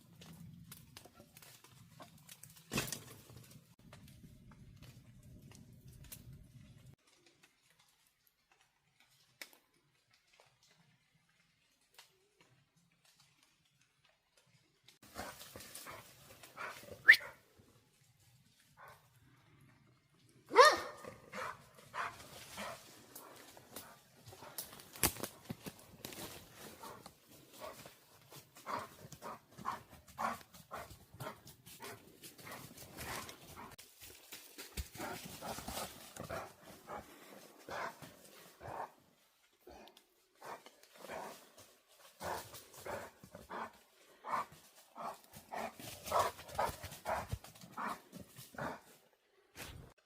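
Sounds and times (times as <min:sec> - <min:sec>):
dog barking: 0:20.5 - 0:22.8.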